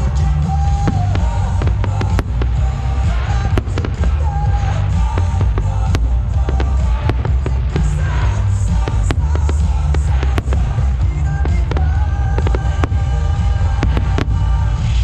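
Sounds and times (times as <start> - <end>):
fireworks bangs and crackles: 0.0 - 15.0
loud music with heavy bass: 0.0 - 15.0.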